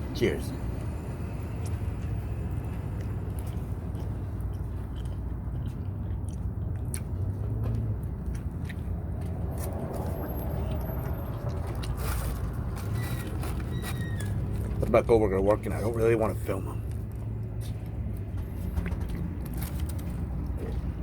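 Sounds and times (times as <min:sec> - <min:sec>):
steady low rumble: 0:00.0 - 0:13.7
person chewing food: 0:01.3 - 0:14.7
wet mouth clicks and smacks: 0:02.9 - 0:12.6.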